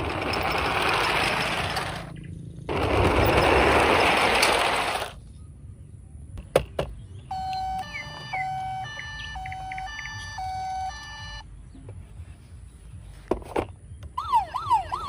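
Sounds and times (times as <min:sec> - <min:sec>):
toy beeping electronic tune: 0:07.3 - 0:11.4.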